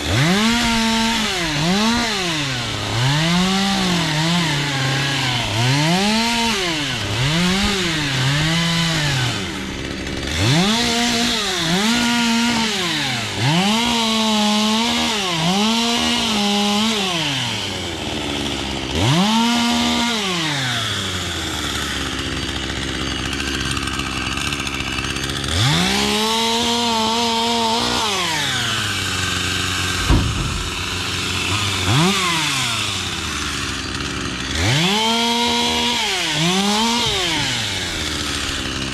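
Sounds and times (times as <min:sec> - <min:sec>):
chainsaw revving and idling: 0:00.0 - 0:38.9
sharp knock: 0:30.0 - 0:31.3.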